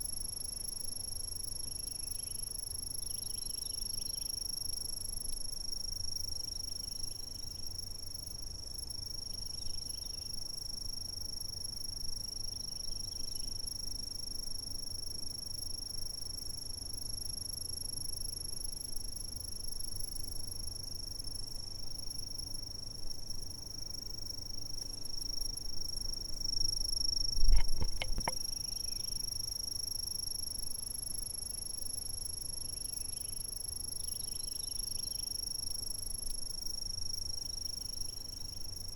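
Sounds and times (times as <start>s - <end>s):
insects trilling: 21.2s - 38.9s
knocks with a low thump: 27.4s - 28.4s.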